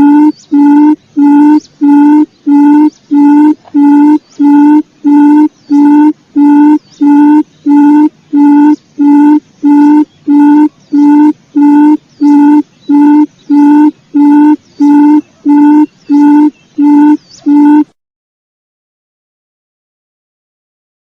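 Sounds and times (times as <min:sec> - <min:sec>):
quail lure call hooting: 0:00.0 - 0:17.9.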